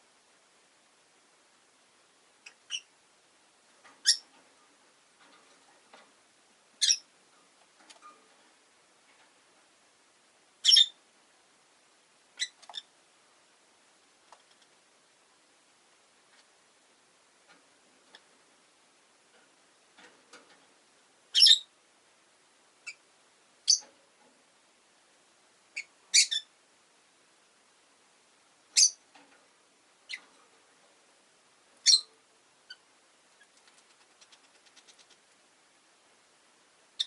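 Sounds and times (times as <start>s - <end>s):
lovebirds chirping: 2.4s - 2.9s, 4.0s - 4.3s, 6.8s - 7.1s, 10.6s - 11.0s, 12.4s - 12.9s, 21.3s - 21.7s, 23.6s - 23.9s, 25.7s - 26.5s, 28.7s - 29.0s, 30.0s - 30.4s, 31.8s - 35.2s.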